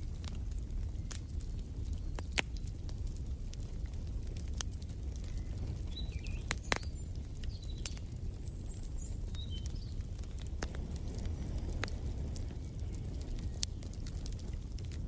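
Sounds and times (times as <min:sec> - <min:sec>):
wood fire crackling: 0:00.0 - 0:15.0
bird chirping: 0:05.3 - 0:10.0.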